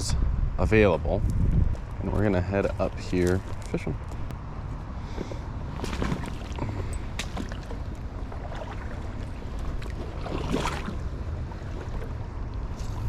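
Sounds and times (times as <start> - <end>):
wind buffeting microphone: 0.0 - 13.0
river water rushing: 7.2 - 13.0.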